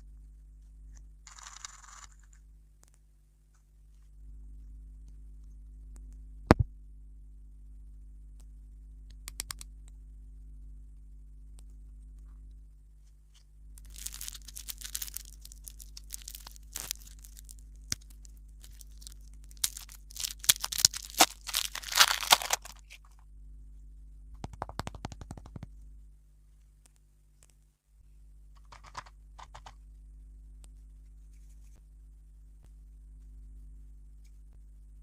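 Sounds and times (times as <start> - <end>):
close-up crackling and crunching: 13.7 - 23.2.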